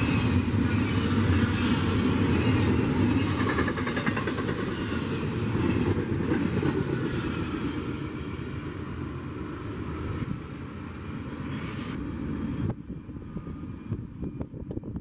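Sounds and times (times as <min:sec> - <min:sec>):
train wheels rumbling on rails: 0:00.0 - 0:11.2.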